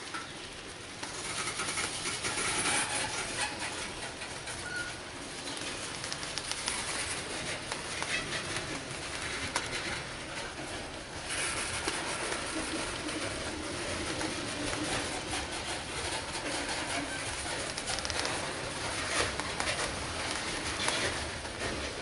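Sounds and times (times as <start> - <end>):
freight train rolling past: 0.0 - 22.0
light clicks on rails: 0.0 - 22.0.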